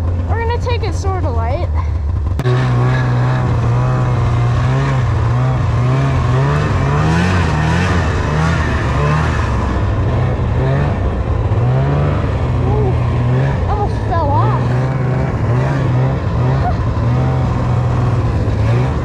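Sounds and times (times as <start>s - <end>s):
snowmobile engine running: 0.0s - 19.0s.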